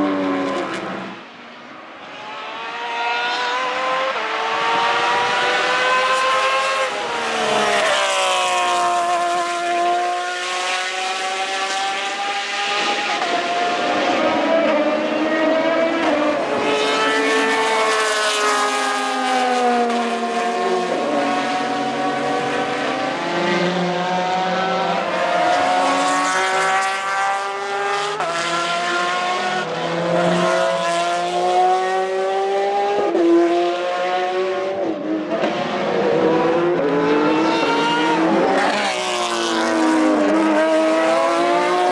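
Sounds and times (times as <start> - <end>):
race car engines passing: 0.0 - 41.9.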